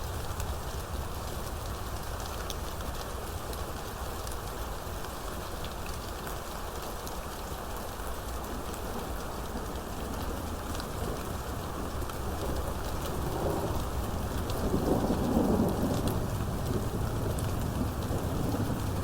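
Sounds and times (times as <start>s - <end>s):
heavy rain falling: 0.0s - 19.0s
sharp rain drop ticks: 12.0s - 19.0s.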